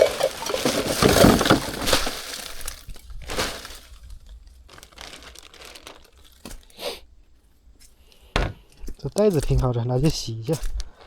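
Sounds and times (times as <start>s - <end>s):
bag rustling and crinkling: 0.0s - 6.8s.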